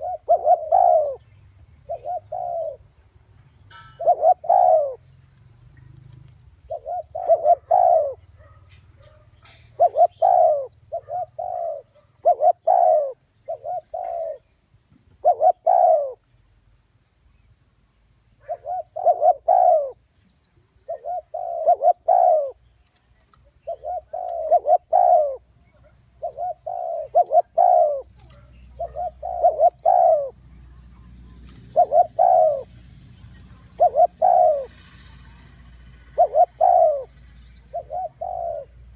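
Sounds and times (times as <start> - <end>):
dove cooing: 0.0 - 3.0, 3.9 - 5.2, 6.6 - 14.5, 15.1 - 16.3, 18.4 - 20.1, 20.7 - 38.9.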